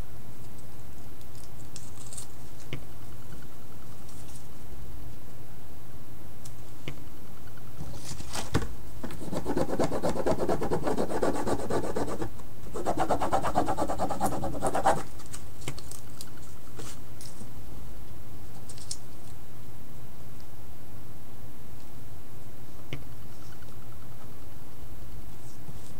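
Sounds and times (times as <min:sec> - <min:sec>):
scratchy rubbing on painting surface: 0:09.2 - 0:15.1.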